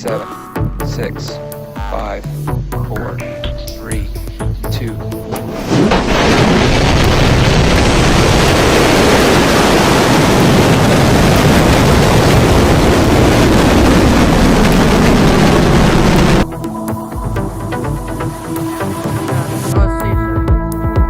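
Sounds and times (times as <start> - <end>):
rocket engines rumbling: 5.0 - 16.8.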